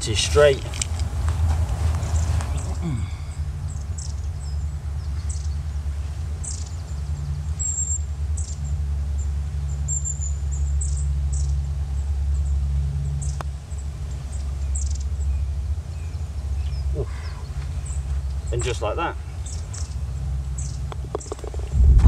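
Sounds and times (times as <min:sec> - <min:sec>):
steady low rumble: 0:00.0 - 0:06.3, 0:20.0 - 0:22.0
small birds chirping: 0:02.0 - 0:21.7.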